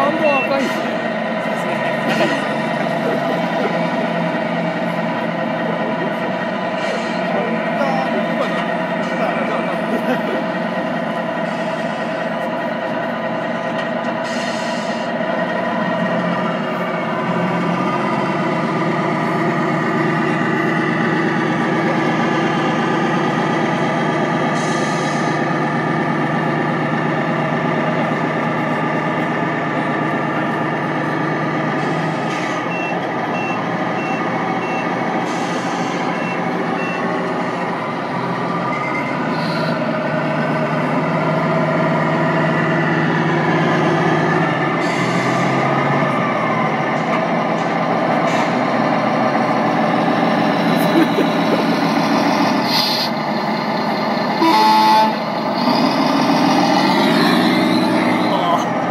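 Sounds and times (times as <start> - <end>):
diesel truck engine sound: 0.0 - 58.9
air brake hisses: 14.2 - 15.1, 24.6 - 25.4, 35.3 - 36.0, 52.6 - 53.2.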